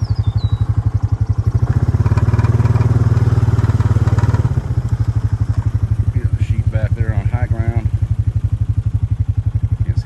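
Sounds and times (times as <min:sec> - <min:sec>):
small vehicle engine putter: 0:00.1 - 0:05.9.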